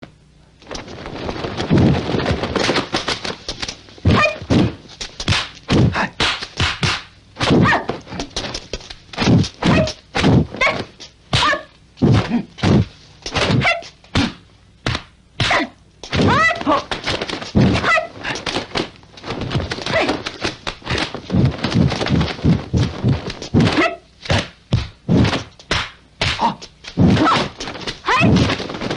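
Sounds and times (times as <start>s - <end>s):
punch and kick impact thwacks: 4.1s - 8.6s, 11.4s - 28.9s.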